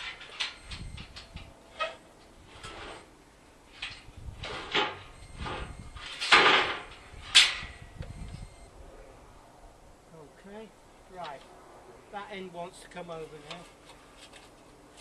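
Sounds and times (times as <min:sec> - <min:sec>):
heavy parts knocking and scraping: 0:03.7 - 0:07.8.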